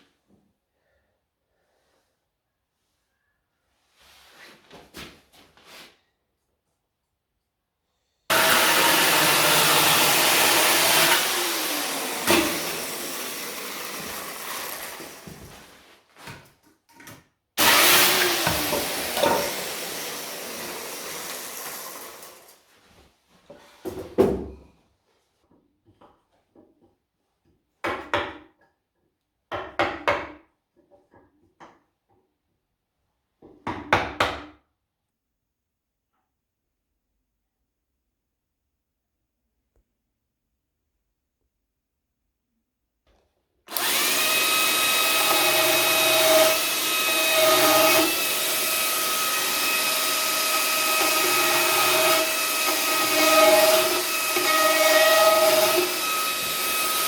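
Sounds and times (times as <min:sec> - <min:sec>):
chainsaw cutting wood: 0:08.3 - 0:15.5, 0:17.6 - 0:22.6, 0:43.7 - 0:57.0.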